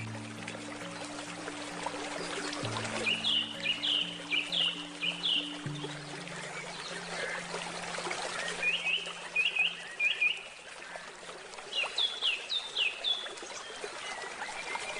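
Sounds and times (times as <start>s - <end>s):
low handpan note: 0.0s - 9.3s
stream trickling and splashing: 0.0s - 14.9s
bird chirps: 2.2s - 7.6s.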